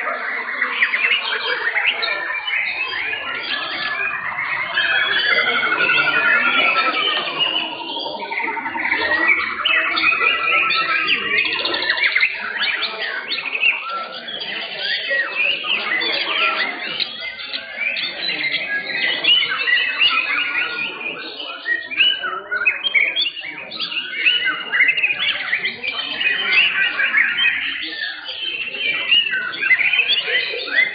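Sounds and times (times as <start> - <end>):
birds singing in chorus: 0.0 - 30.9.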